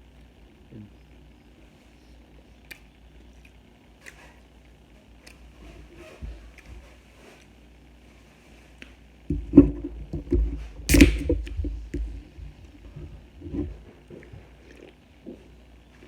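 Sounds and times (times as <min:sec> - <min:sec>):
chewing and biting food: 0:10.7 - 0:15.9.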